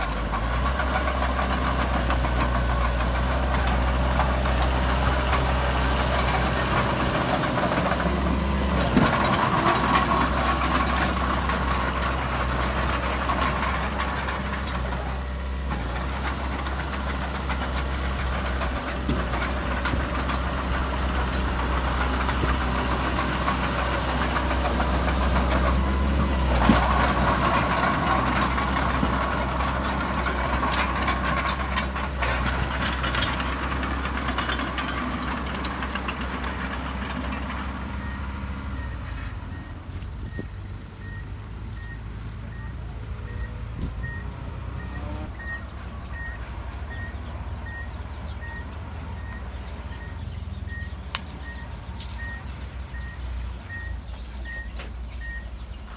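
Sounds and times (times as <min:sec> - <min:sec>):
heavy diesel machinery droning: 0:00.0 - 0:55.9
reversing alarm beeping: 0:38.0 - 0:55.5.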